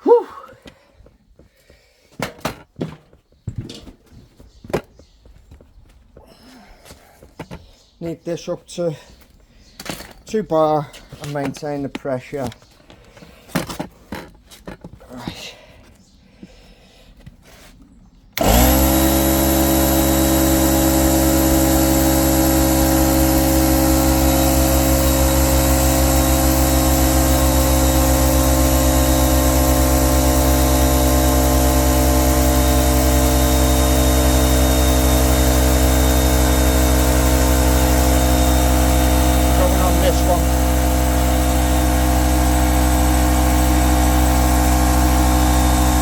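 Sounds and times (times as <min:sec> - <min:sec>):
air compressor running: 0:18.4 - 0:46.0.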